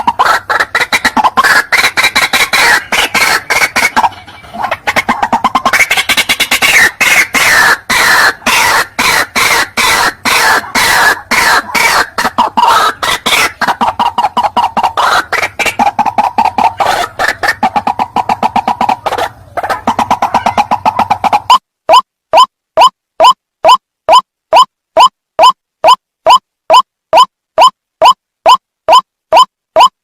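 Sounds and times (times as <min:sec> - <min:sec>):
waterhen calling loudly: 0:00.0 - 0:22.9.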